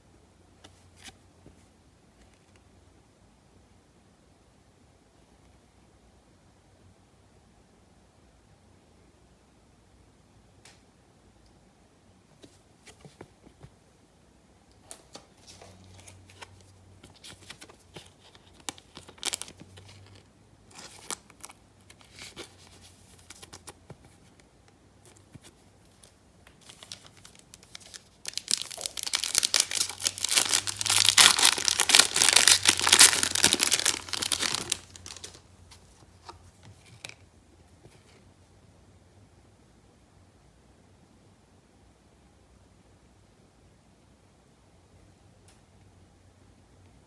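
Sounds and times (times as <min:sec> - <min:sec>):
trading cards rustling and clicking: 0:25.2 - 0:35.4
foil wrapper tearing and crinkling: 0:26.8 - 0:35.4.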